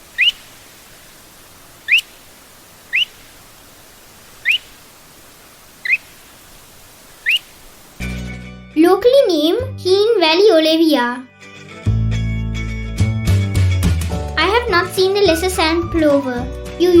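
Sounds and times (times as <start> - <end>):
plover calling: 0.0 - 8.0
faint steady hiss: 0.0 - 8.1.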